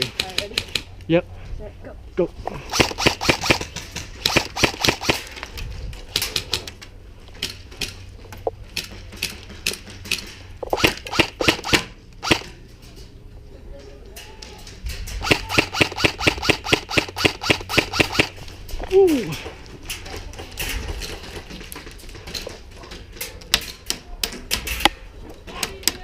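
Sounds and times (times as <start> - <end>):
airsoft guns firing bursts: 2.7 - 5.3, 10.8 - 12.5, 15.2 - 18.4.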